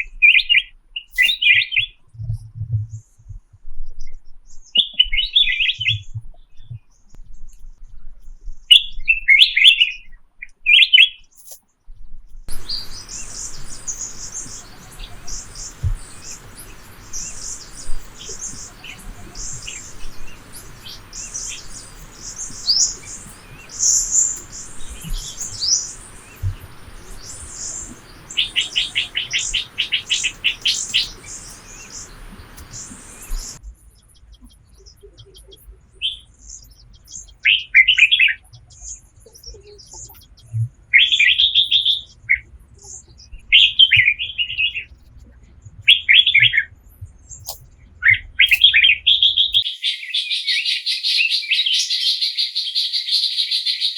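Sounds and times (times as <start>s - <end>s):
birds chirping: 12.5s - 33.6s, 48.5s - 53.9s
faint hiss: 12.5s - 33.6s.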